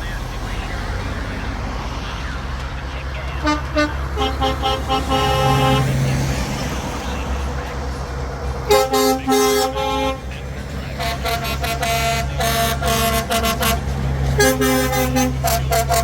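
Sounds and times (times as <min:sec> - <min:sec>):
diesel engines running: 0:00.0 - 0:16.0
truck air horns tooting: 0:03.2 - 0:16.0.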